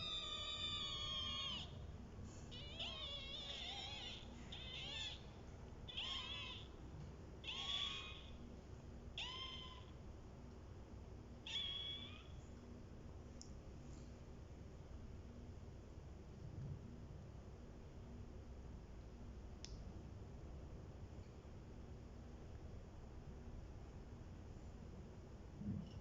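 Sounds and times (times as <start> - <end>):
kitten meowing: 0.0 - 1.8, 2.5 - 5.2, 5.9 - 6.7, 7.4 - 8.4, 9.2 - 9.9, 11.5 - 12.3.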